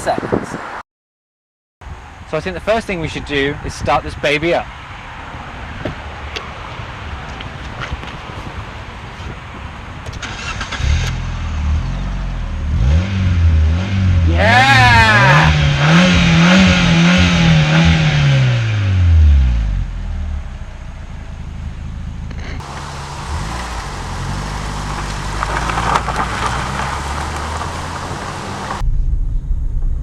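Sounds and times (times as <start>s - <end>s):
car engine cranking and starting: 10.0s - 13.0s, 20.4s - 28.8s
car engine revving: 10.2s - 28.8s
car engine idling: 19.6s - 28.8s.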